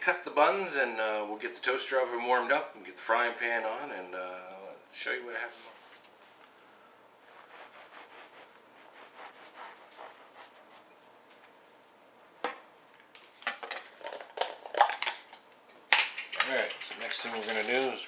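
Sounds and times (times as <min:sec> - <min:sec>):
knife sawing through buns: 0:07.3 - 0:10.9.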